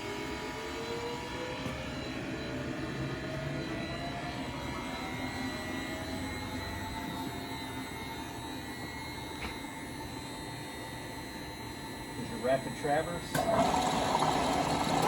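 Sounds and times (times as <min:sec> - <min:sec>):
lathe motor whine and hum: 0:00.0 - 0:15.0.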